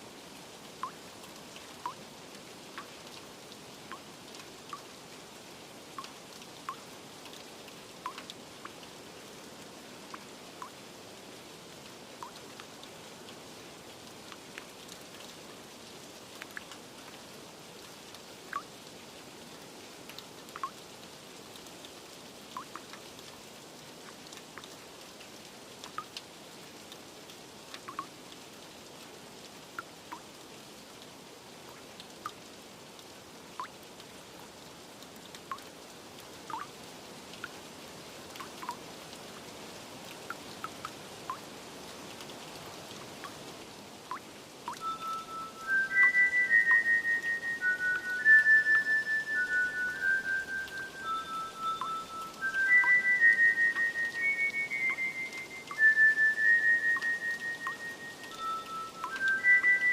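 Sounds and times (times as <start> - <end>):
steady rain hiss: 0.0 - 59.9
plinking water drips: 0.8 - 2.0, 3.9 - 5.0, 5.9 - 9.0, 10.0 - 10.8, 12.2 - 15.4, 16.3 - 17.2, 17.8 - 18.8, 20.0 - 20.9, 22.5 - 23.4, 24.0 - 26.3, 26.9 - 28.4, 29.7 - 30.4, 31.6 - 32.5, 33.6 - 34.2, 35.0 - 37.6, 38.3 - 39.5, 40.1 - 59.9.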